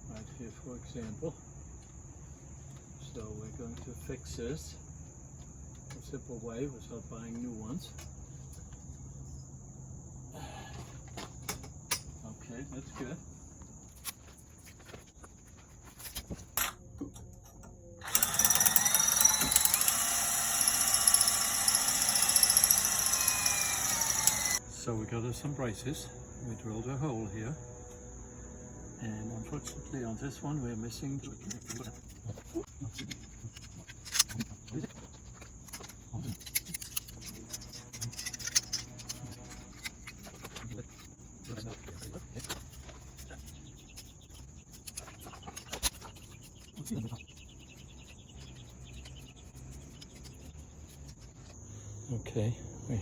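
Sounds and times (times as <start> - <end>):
crickets chirping: 0.0 - 53.0
power tool running: 18.0 - 24.6.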